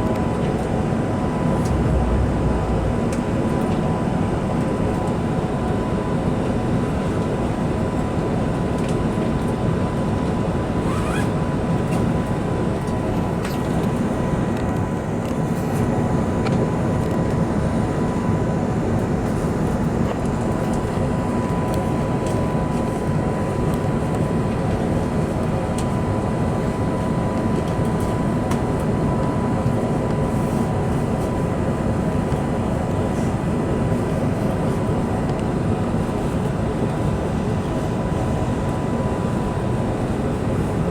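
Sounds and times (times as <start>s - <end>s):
airplane cabin air and engine noise: 0.0s - 40.9s
thin steady whine: 1.2s - 4.4s.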